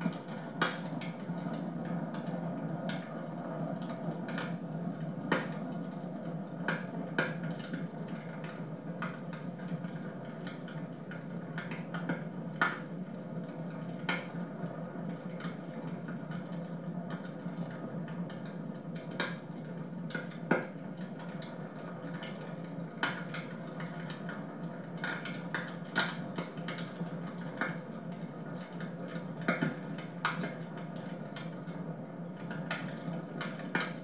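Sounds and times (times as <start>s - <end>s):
wood fire crackling: 0.0s - 34.0s
sharp pops and snaps: 11.6s - 12.9s.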